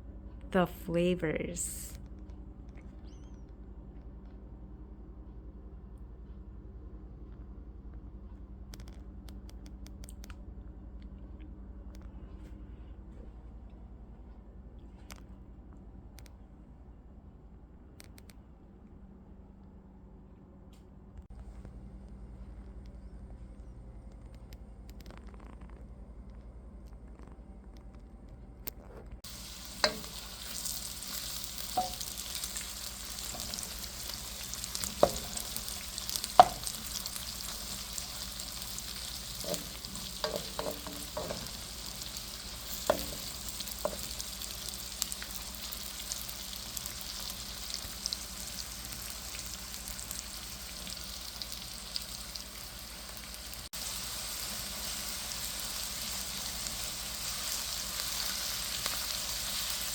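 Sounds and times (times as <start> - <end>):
food sizzling in a pan: 29.2 - 59.9
utensil knocking against pan: 36.4 - 36.8, 39.4 - 41.6.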